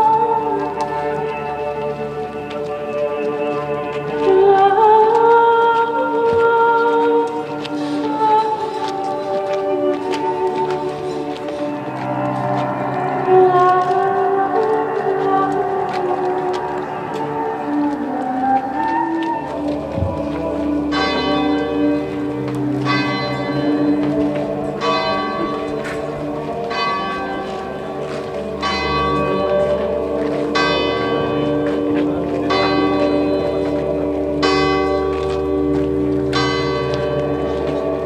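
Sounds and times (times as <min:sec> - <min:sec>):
bell tolling: 0:20.8 - 0:38.0.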